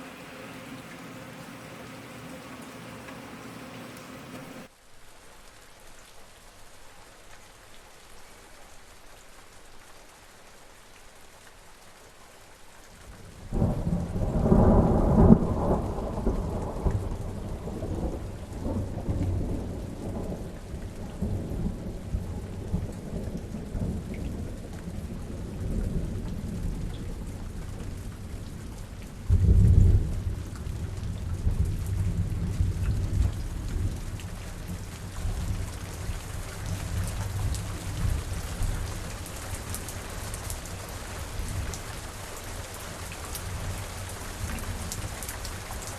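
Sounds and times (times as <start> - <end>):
thunder rumbling: 0.0 - 4.7, 13.6 - 27.2
steady rain falling: 0.0 - 45.9.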